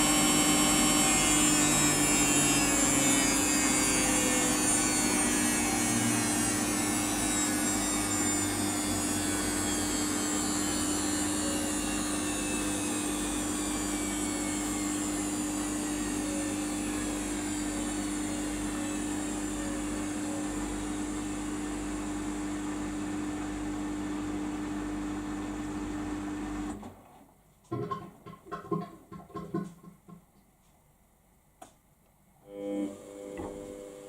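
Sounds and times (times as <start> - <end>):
washing machine motor whine: 0.0 - 27.1, 32.4 - 34.0.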